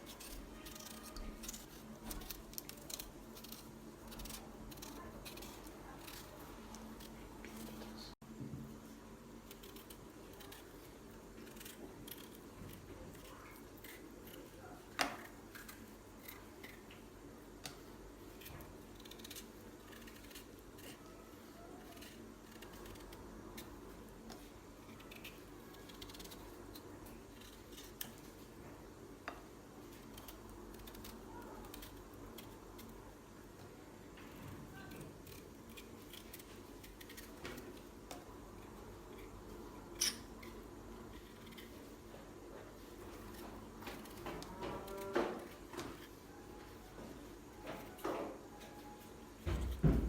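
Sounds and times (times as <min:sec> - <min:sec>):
potato peeling scrapes: 0:00.0 - 0:08.1, 0:09.4 - 0:16.9, 0:18.2 - 0:28.5.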